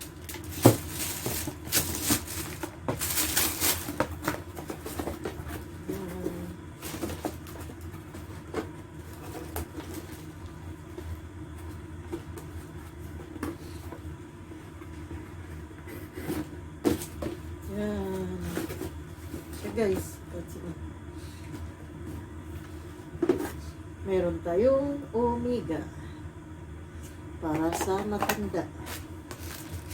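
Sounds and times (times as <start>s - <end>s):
packaging rustling and clicking: 0.0s - 6.2s, 6.8s - 10.6s, 28.2s - 29.9s
steady low hum: 0.0s - 29.9s.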